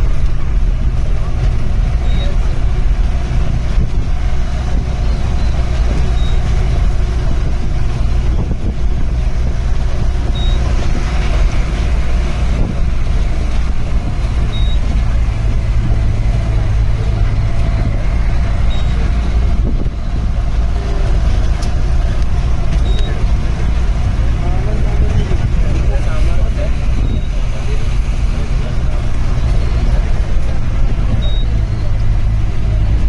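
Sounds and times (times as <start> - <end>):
vehicle engine rumbling: 0.0 - 33.0.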